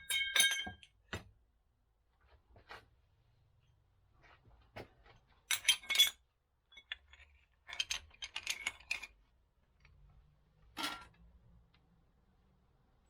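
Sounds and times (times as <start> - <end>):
metal parts clatter: 5.5 - 9.2
metal parts clinking: 5.5 - 9.2.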